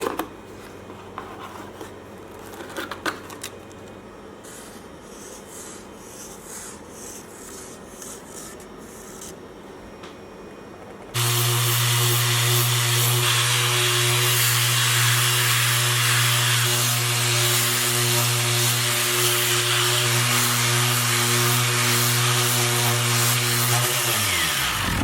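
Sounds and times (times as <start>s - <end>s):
power sander humming: 11.2s - 25.0s.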